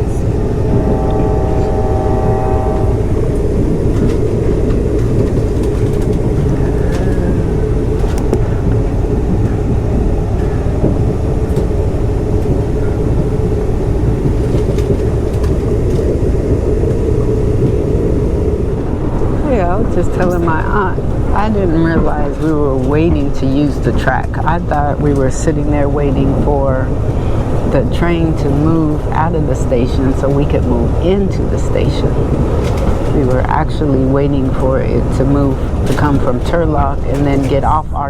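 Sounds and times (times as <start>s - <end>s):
train rumbling on track: 0.0s - 38.0s
brief steady tone: 0.7s - 3.2s.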